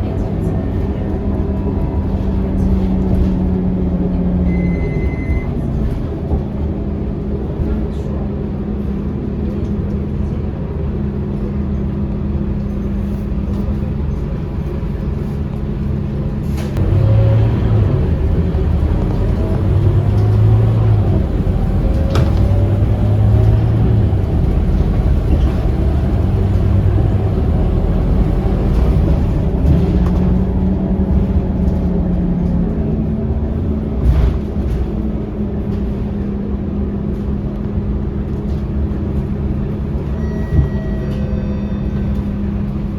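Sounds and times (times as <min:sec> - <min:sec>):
bus engine: 0:00.0 - 0:42.9.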